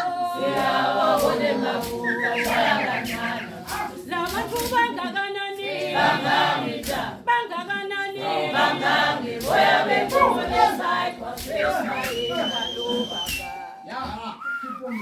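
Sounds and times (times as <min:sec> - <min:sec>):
group singing a cappella: 0:00.0 - 0:14.0.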